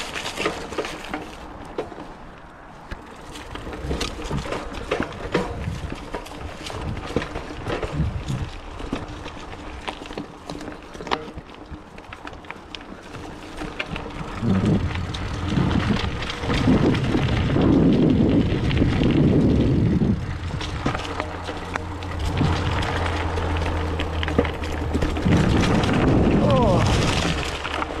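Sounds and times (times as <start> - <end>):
bike clicks and rattles: 0.0 - 28.0
bike tyre and drivetrain noise: 0.0 - 28.0
wind buffeting microphone: 3.5 - 9.7, 13.9 - 28.0.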